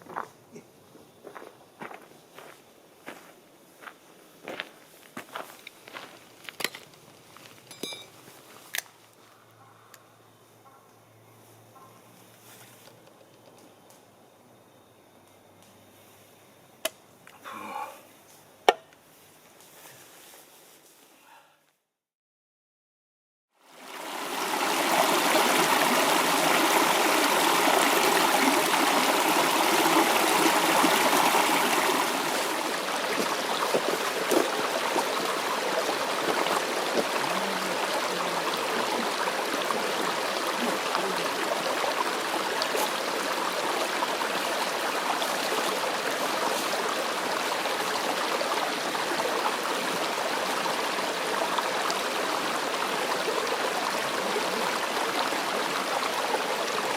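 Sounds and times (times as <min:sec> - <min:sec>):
stream flowing: 0:23.6 - 0:56.9.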